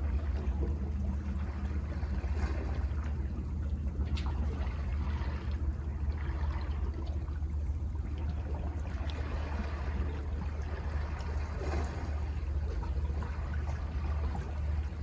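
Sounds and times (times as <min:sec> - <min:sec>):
water trickles and splashes: 0:00.0 - 0:15.0.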